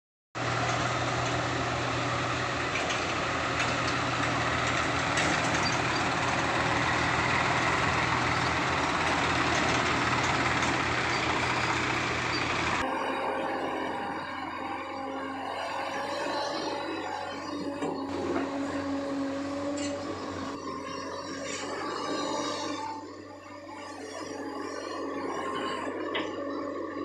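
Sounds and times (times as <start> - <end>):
heavy machinery engine running: 0.4 - 27.0.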